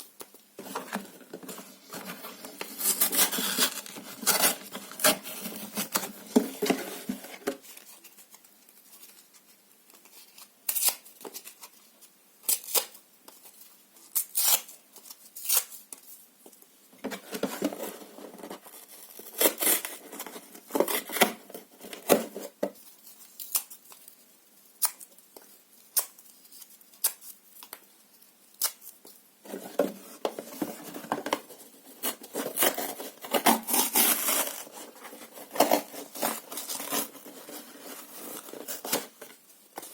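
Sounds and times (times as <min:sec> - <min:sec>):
paper and cardboard tearing: 0:32.0 - 0:39.2.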